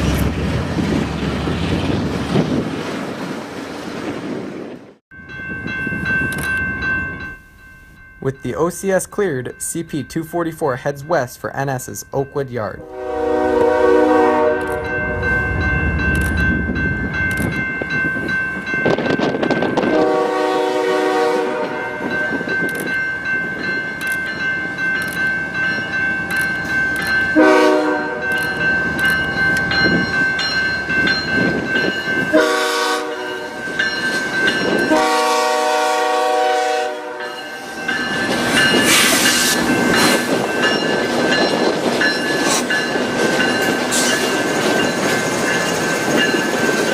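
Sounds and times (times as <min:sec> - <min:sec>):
train wheels on rails: 0:00.0 - 0:09.3, 0:13.2 - 0:46.9
locomotive horn blasts: 0:12.8 - 0:15.5, 0:19.8 - 0:22.1, 0:27.4 - 0:28.3, 0:32.2 - 0:33.6, 0:34.8 - 0:37.8
high ringing tone: 0:14.0 - 0:19.6, 0:37.1 - 0:46.9.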